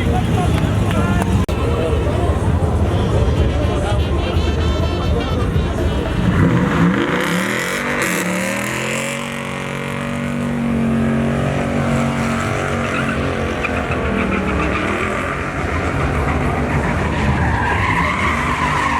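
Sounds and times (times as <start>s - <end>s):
pickup truck engine revving: 0.0s - 18.9s
tyre squeal: 11.5s - 18.9s.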